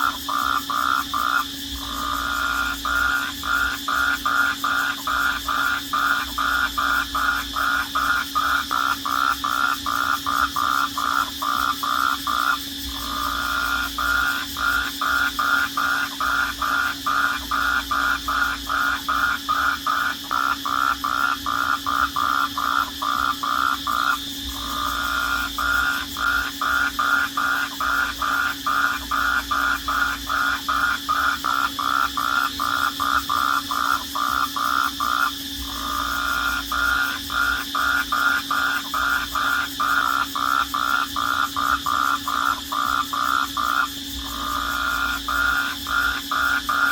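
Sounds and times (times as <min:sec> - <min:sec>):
crickets chirping: 0:00.0 - 0:46.9.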